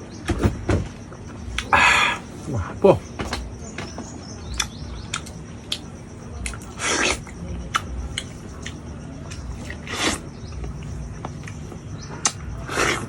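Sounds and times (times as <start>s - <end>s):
wet chewing and lip smacks: 4.5s - 13.0s
loud slurps: 6.7s - 7.3s, 9.7s - 10.2s, 12.7s - 13.0s.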